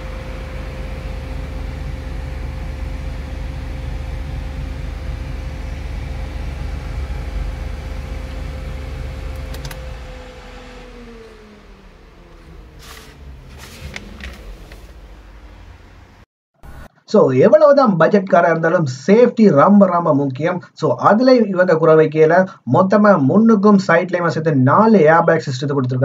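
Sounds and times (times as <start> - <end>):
car driving rumble: 0.0 - 16.3
thin whine: 0.0 - 17.0.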